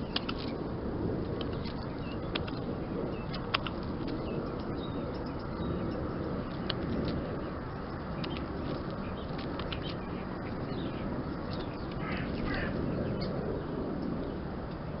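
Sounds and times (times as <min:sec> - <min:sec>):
small ticks: 0:00.0 - 0:00.6, 0:01.3 - 0:12.1
steady background noise: 0:00.0 - 0:15.0
rough bird call: 0:11.8 - 0:13.3.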